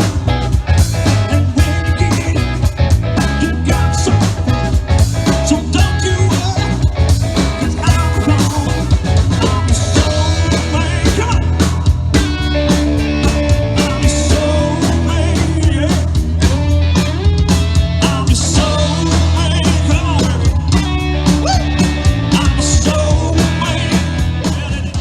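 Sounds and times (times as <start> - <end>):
drum kit beat: 0.0 - 25.0
guitar: 0.0 - 25.0
person singing: 1.2 - 4.6, 5.2 - 12.0, 13.6 - 16.7, 18.0 - 25.0.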